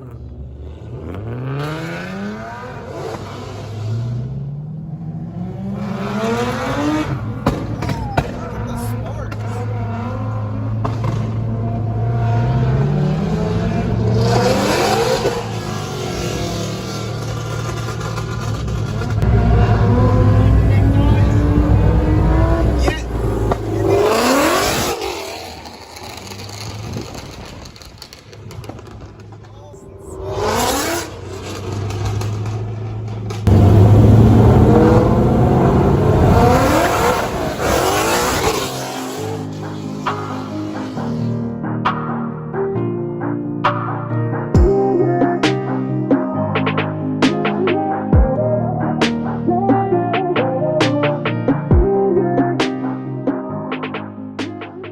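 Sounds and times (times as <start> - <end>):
car engine accelerating: 0.0 - 41.5
car passing rush: 0.0 - 41.6.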